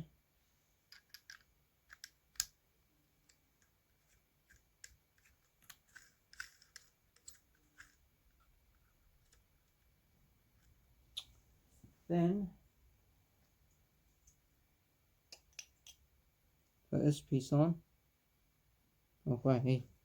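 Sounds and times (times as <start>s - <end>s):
small parts clicking and tapping: 0.8s - 2.6s, 3.2s - 9.9s, 15.3s - 16.1s.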